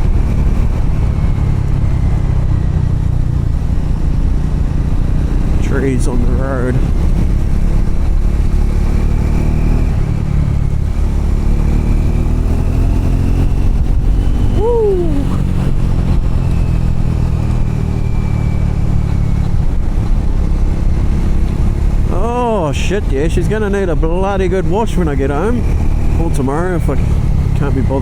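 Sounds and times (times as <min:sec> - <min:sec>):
motorcycle engine running: 0:00.0 - 0:28.0
rising-and-falling tone: 0:11.7 - 0:19.3.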